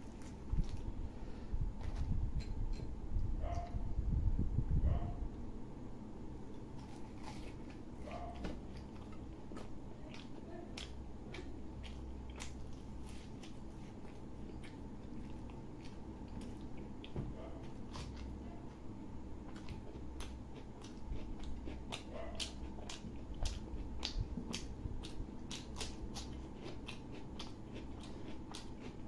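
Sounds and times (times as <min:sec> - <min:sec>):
steady low hum: 0:00.0 - 0:29.0
close chewing: 0:06.5 - 0:18.5, 0:19.4 - 0:29.0.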